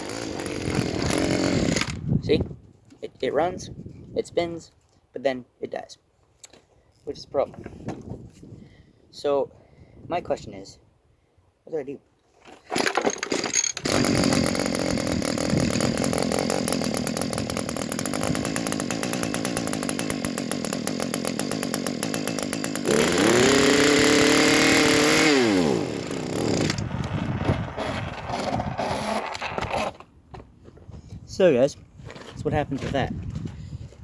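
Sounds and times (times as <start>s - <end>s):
string trimmer engine running: 0.0s - 2.0s, 12.8s - 29.9s.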